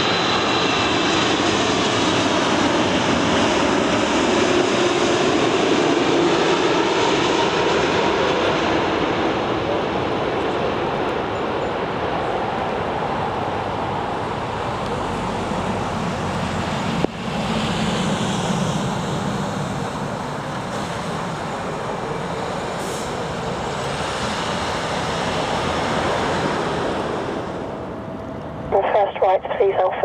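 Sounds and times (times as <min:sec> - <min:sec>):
jet engines rumbling: 0:00.0 - 0:30.0.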